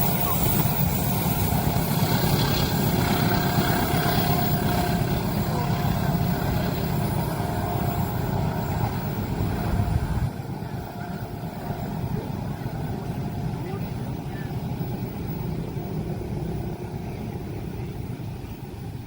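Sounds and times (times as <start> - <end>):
train passing rumble: 0.0 - 19.0.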